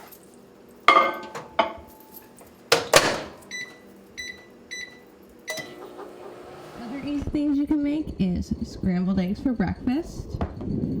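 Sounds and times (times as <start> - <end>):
microwave keypad beeps: 3.5 - 6.0.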